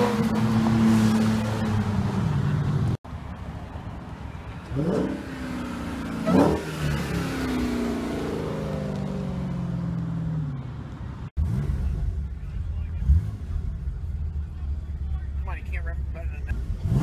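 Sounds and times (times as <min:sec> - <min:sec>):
car engine revving and accelerating: 0:04.7 - 0:10.0, 0:11.3 - 0:12.2, 0:13.0 - 0:14.2, 0:16.5 - 0:17.0.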